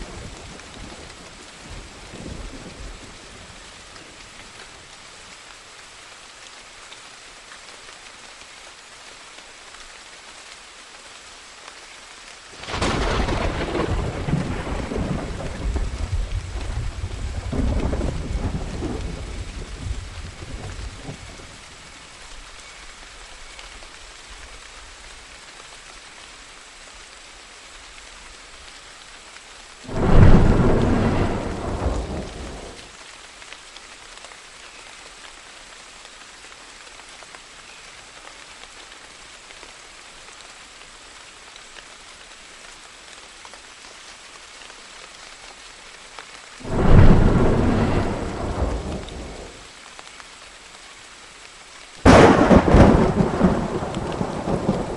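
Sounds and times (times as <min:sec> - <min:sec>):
steady rain: 0:00.0 - 0:54.9
thunder claps rumbling: 0:12.6 - 0:21.3, 0:29.9 - 0:32.8, 0:46.6 - 0:49.6, 0:52.1 - 0:54.9.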